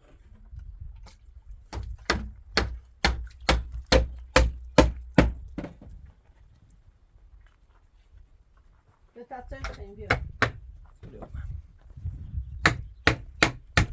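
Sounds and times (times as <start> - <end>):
hammer driving nails into wood: 1.7 - 5.7, 9.6 - 10.6, 12.6 - 13.9.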